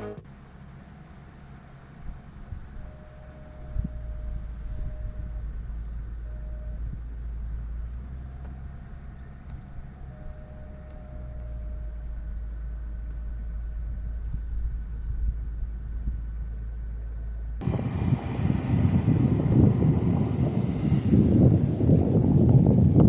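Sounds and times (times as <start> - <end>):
faint whine: 0.0 - 18.4
vehicle engine rumble: 0.0 - 23.0.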